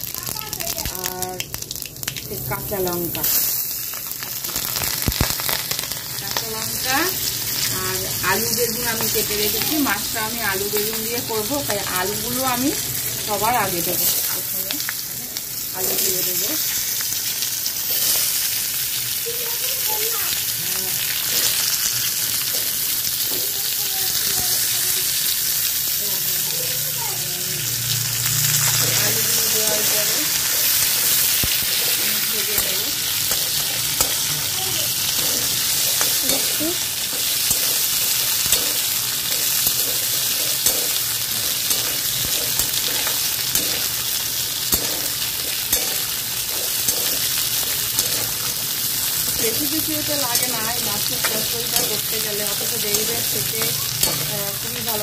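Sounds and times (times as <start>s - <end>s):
potatoes sizzling in hot oil: 0.0s - 55.0s
metal spatula scraping pan: 28.6s - 55.0s.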